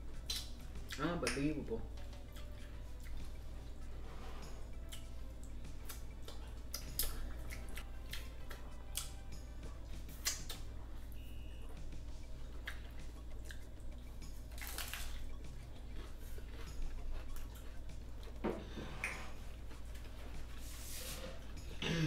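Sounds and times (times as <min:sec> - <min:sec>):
low steady hum: 0:00.0 - 0:22.0
tacos crunching while chewed: 0:00.2 - 0:01.0, 0:02.0 - 0:03.4, 0:04.8 - 0:09.3, 0:12.5 - 0:20.6
wet mouth clicks: 0:00.2 - 0:01.4.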